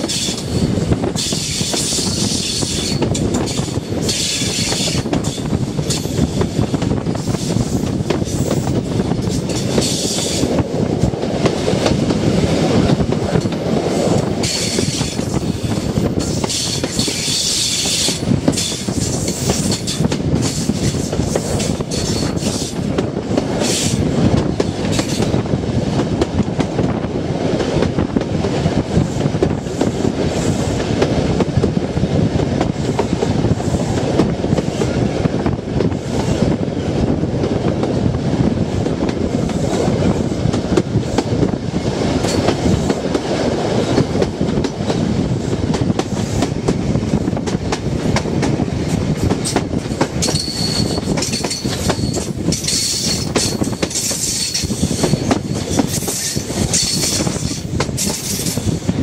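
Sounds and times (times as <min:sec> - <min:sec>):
train rumble and air rush: 0:00.0 - 0:59.0
high wheel squeal: 0:50.2 - 0:57.6.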